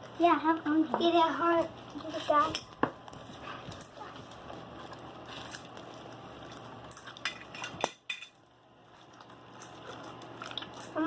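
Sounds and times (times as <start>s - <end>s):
bowl and utensils clinking: 6.9s - 8.4s.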